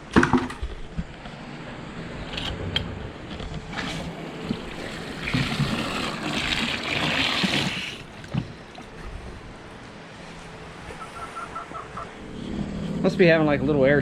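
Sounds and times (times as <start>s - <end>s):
water pouring into a container: 3.8s - 8.1s.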